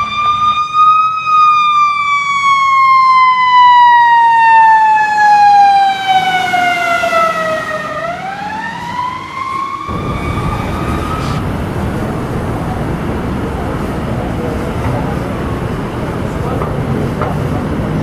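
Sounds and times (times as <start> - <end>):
fire truck siren wailing: 9.9 - 16.3
engine and road rumble: 9.9 - 17.7.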